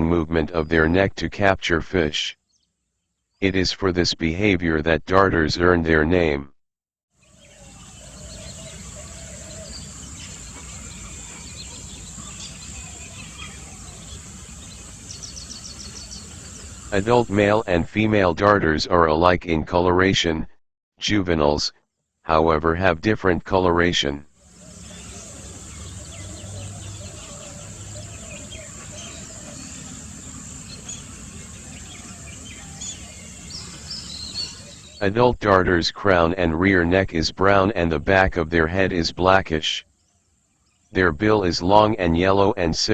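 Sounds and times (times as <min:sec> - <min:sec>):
high insect drone: 0:07.2 - 0:17.3, 0:24.4 - 0:35.0
small bird chirps: 0:07.2 - 0:17.3, 0:24.4 - 0:35.0.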